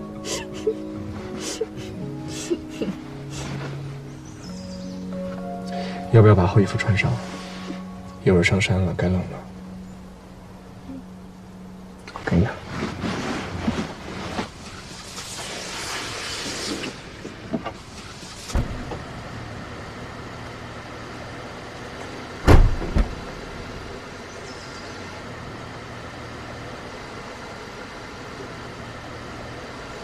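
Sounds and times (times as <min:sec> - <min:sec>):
car engine humming: 0:00.0 - 0:30.0
rustle: 0:02.9 - 0:05.5, 0:06.8 - 0:08.2, 0:09.4 - 0:30.0
heavy double thump: 0:22.5 - 0:23.2.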